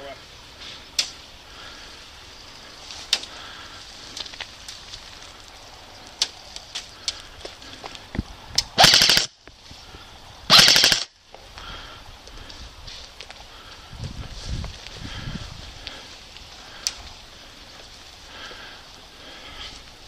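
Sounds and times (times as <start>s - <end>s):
airsoft rifle full-auto bursts: 8.8s - 9.3s, 10.5s - 11.1s
airsoft rifle single shots: 8.8s - 9.3s, 10.5s - 11.1s.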